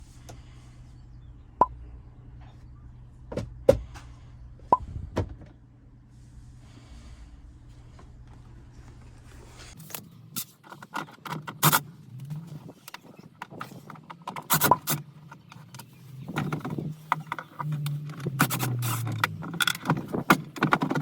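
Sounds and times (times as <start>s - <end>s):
steady low hum: 0.0s - 10.9s
sharp clicks and knocks: 12.8s - 21.0s.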